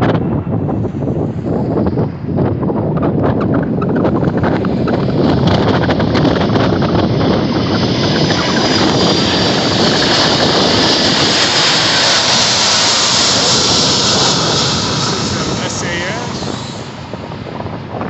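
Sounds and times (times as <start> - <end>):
jet engine roar with whine: 0.0 - 18.0
wind buffeting microphone: 0.0 - 18.0.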